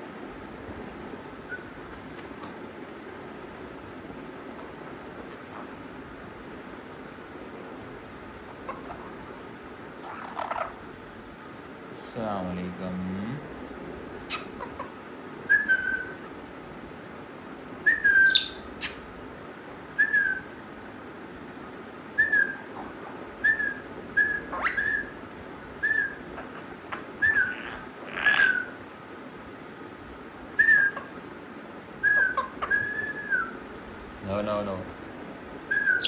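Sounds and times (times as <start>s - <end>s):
parrot whistling: 1.4s - 2.3s, 14.3s - 14.9s, 15.5s - 16.2s, 17.8s - 19.0s, 20.0s - 20.5s, 22.2s - 22.7s, 23.4s - 25.2s, 25.8s - 26.5s, 27.2s - 28.8s, 30.6s - 31.1s, 32.0s - 33.6s, 35.7s - 36.0s
harsh parrot calls: 8.5s - 9.2s, 10.0s - 10.8s, 14.2s - 16.2s, 17.9s - 19.1s, 22.2s - 25.2s, 25.8s - 28.8s, 32.1s - 34.5s, 35.7s - 36.0s.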